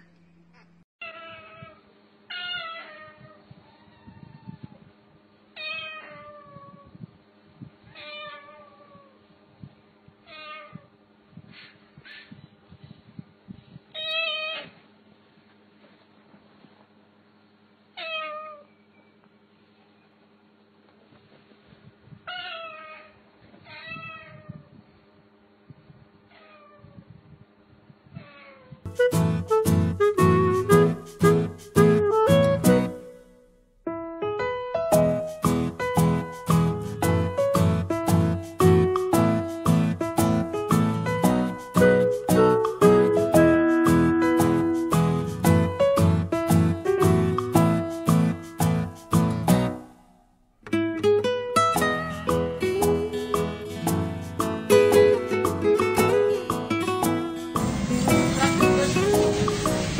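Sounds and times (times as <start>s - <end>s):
cat meowing: 1.0s - 4.8s, 5.6s - 7.0s, 7.9s - 9.2s, 10.3s - 10.9s, 14.0s - 14.8s, 18.0s - 18.7s, 22.3s - 24.7s, 26.3s - 27.2s, 28.1s - 28.8s.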